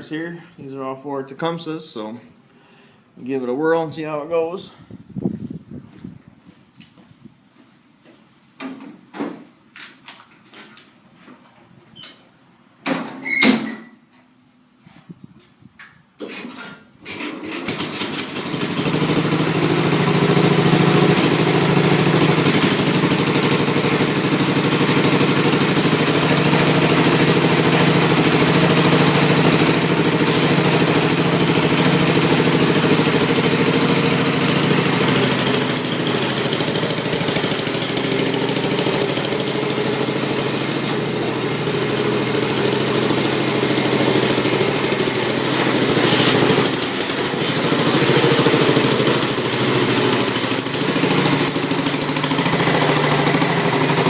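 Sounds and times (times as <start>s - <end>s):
tractor engine cold-starting: 16.2s - 54.0s.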